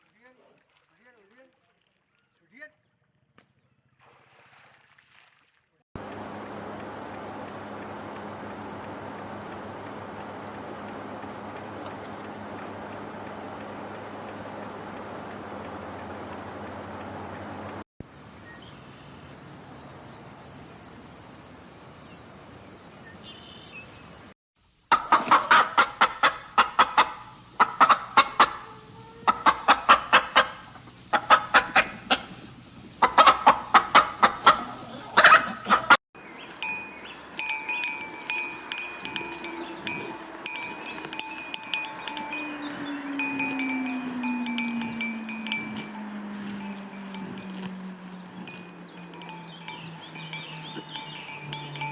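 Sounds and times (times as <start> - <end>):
chickens clucking: 6.0 - 17.8, 24.9 - 36.0
light ticks: 6.0 - 17.8
steady ringing tones: 6.0 - 17.8, 36.6 - 51.9.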